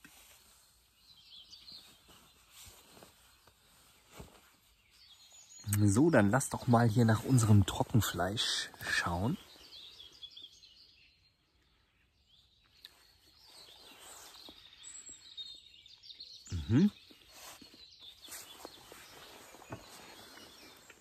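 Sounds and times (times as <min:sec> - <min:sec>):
faint birds chirping: 0:00.0 - 0:21.0
man humming: 0:16.5 - 0:16.9.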